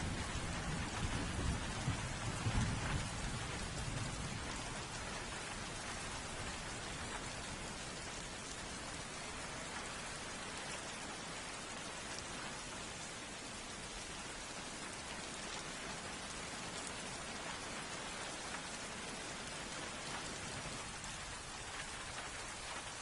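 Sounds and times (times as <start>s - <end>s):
low rumble of thunder: 0.0s - 10.7s
heavy rain falling: 0.0s - 23.0s.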